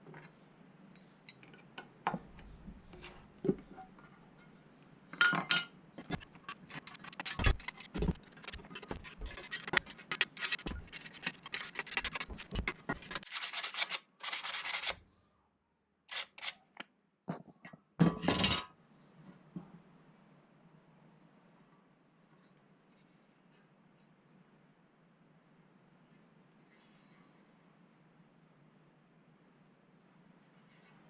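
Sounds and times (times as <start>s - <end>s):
scrubbing bursts: 6.0s - 13.3s
scraping on metal scale: 6.0s - 15.0s.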